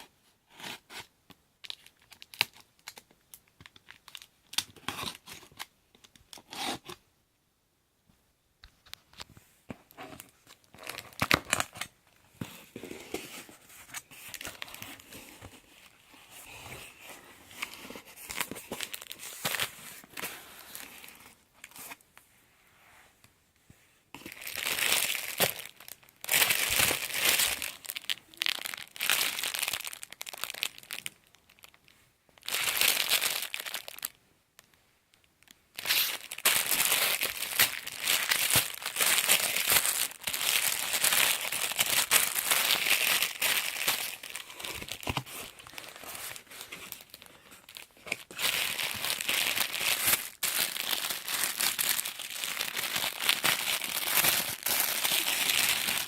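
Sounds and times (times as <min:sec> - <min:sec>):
packaging crinkling and rustling: 0:08.8 - 0:22.0, 0:24.2 - 0:31.8, 0:32.4 - 0:56.0.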